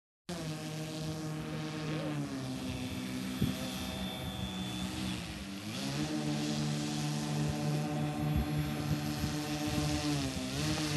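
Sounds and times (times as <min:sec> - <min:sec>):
electric motors whining: 0:00.3 - 0:10.9.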